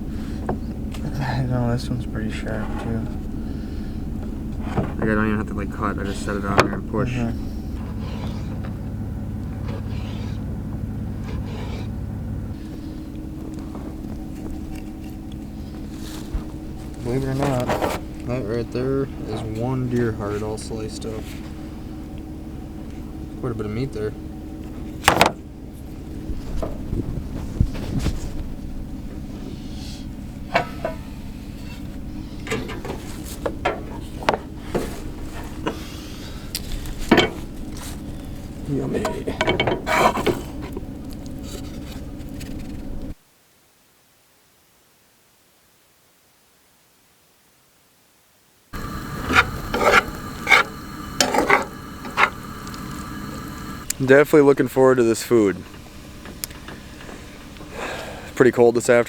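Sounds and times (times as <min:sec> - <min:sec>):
low engine drone: 0:00.0 - 0:27.7, 0:28.4 - 0:43.2, 0:48.8 - 0:59.0
steady low hum: 0:00.0 - 0:43.2, 0:48.7 - 0:59.0
utensils and dishes clicking: 0:48.8 - 0:54.0.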